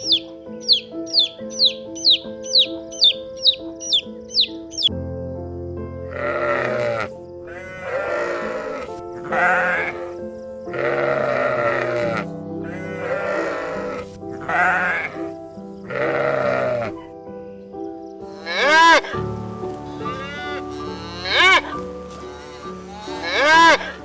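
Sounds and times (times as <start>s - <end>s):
background music: 0.0s - 24.0s
sheep bleating: 6.1s - 17.1s, 18.3s - 24.0s.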